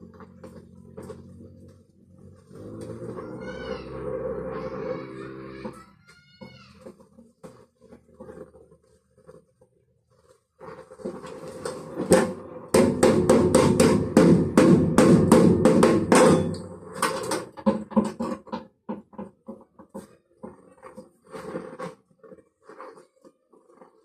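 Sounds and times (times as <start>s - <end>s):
rapid sharp knocks: 12.7s - 16.5s.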